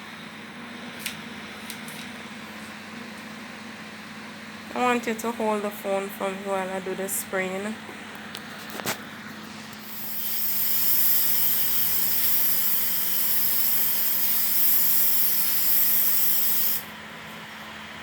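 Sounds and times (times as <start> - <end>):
aerosol can spraying hiss: 9.8 - 16.8.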